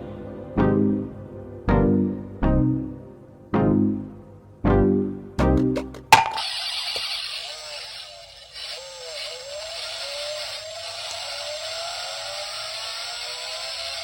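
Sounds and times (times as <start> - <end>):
small motor whirring: 7.1 - 14.0.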